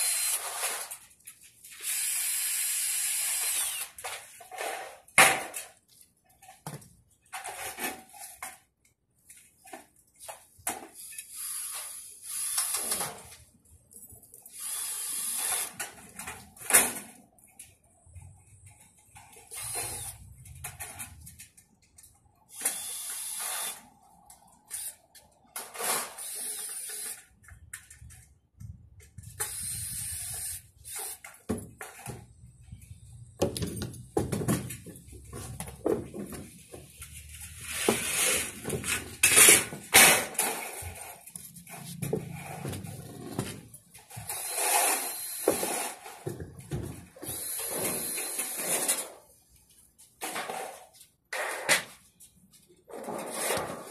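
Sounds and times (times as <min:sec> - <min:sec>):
cordless drill driving screws: 0:00.0 - 0:00.9, 0:01.7 - 0:04.0, 0:11.0 - 0:13.0, 0:14.5 - 0:15.8, 0:19.5 - 0:20.3, 0:22.5 - 0:23.9, 0:25.9 - 0:27.2, 0:29.4 - 0:31.4, 0:44.1 - 0:46.0, 0:47.2 - 0:49.0.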